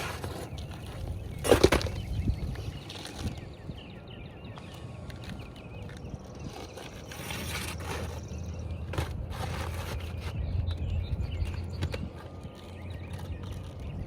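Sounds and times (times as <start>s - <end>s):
roof shingle scraping and crackling: 0.0s - 3.8s, 4.6s - 10.5s.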